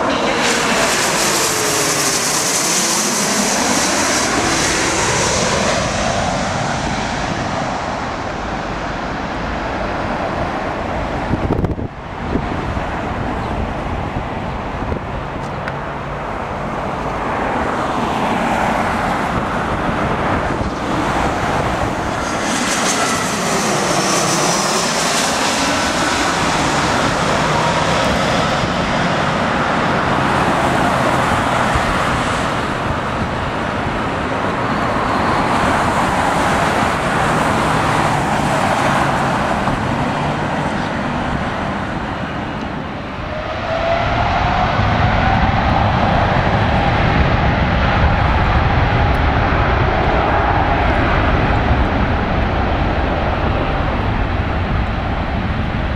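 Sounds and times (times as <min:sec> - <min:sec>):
high whine: 0:00.0 - 0:09.8
jet engines passing close: 0:00.0 - 0:55.9.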